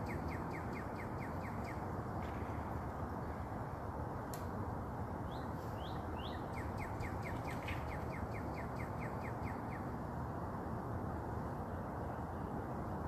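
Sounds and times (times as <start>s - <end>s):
bird calling with trill: 0.0s - 1.9s, 5.3s - 9.9s.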